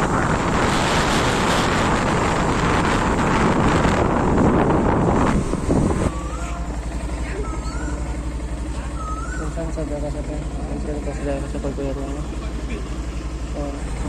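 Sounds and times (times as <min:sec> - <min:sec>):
wind rushing over microphone: 0:00.0 - 0:06.2.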